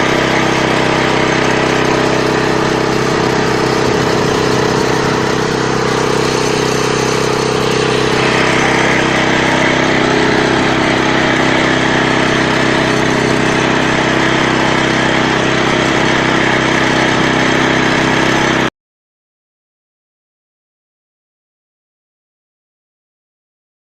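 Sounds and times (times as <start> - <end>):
walk-behind tractor engine running: 0.0 - 18.7.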